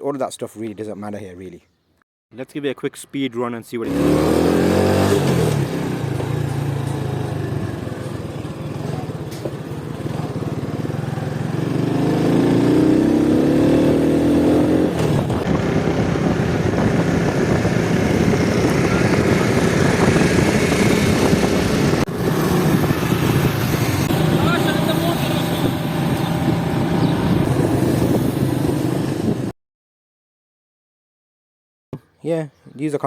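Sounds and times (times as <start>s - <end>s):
motorcycle engine accelerating: 3.9s - 29.5s.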